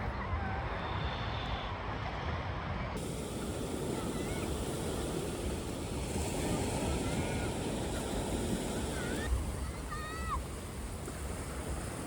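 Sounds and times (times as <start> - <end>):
wind: 0.0 - 12.0
sea surf rushing: 3.0 - 12.0.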